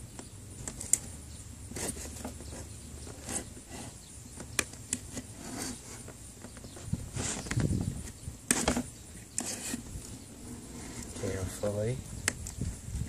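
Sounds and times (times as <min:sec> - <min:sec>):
scraping tape off rubber: 0:01.7 - 0:11.3.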